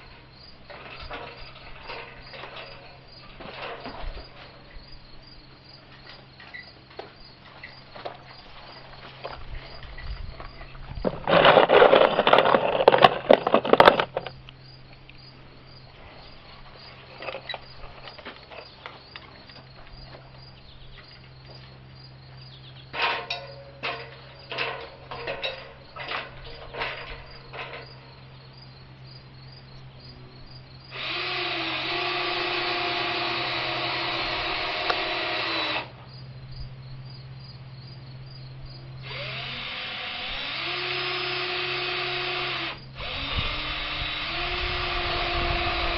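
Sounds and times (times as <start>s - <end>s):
loud clatter: 11.0s - 14.3s
power drill running: 30.9s - 35.9s, 39.0s - 45.9s.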